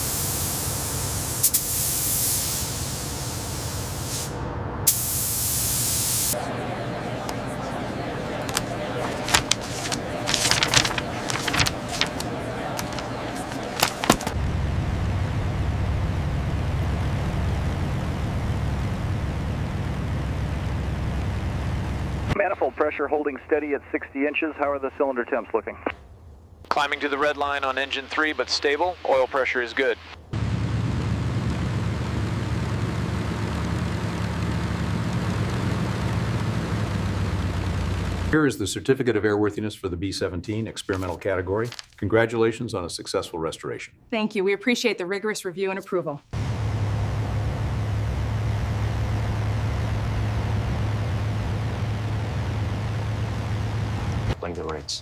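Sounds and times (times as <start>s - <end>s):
aircraft engine droning: 2.9s - 22.4s, 30.2s - 38.4s, 46.4s - 54.8s.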